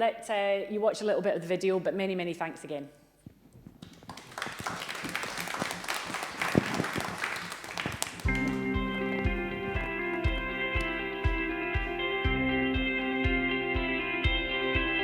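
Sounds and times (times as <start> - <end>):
crowd applauding: 3.8 - 11.0
guitar music over low beat: 8.2 - 15.0.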